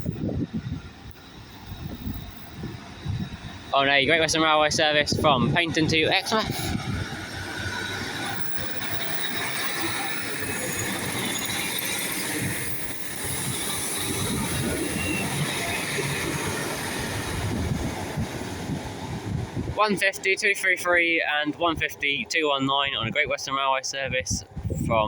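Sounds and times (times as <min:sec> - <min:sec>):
train wheels rumbling on rails: 0:00.0 - 0:23.4
high wheel squeal: 0:06.8 - 0:18.2.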